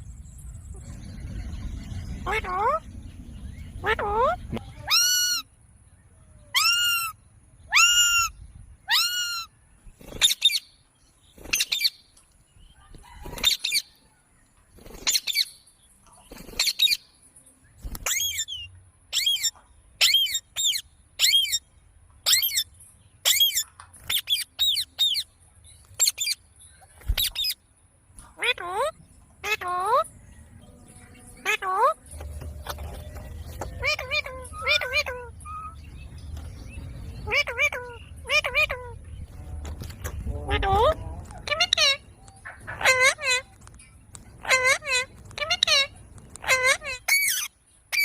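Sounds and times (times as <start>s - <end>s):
parrot calling: 2.2s - 2.8s, 3.8s - 5.5s, 6.5s - 9.5s, 28.4s - 30.0s, 31.3s - 35.9s, 37.1s - 39.0s, 40.2s - 43.6s, 44.4s - 48.0s.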